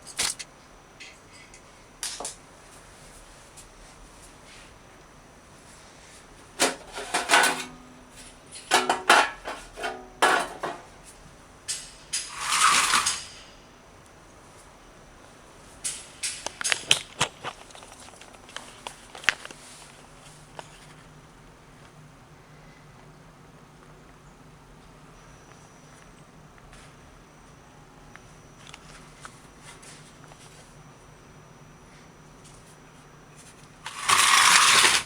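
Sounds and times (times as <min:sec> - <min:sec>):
metal and plastic parts clinking: 0:06.6 - 0:07.8, 0:08.6 - 0:10.9, 0:33.9 - 0:35.0
scrape: 0:06.6 - 0:07.8, 0:12.2 - 0:13.6, 0:33.9 - 0:35.0.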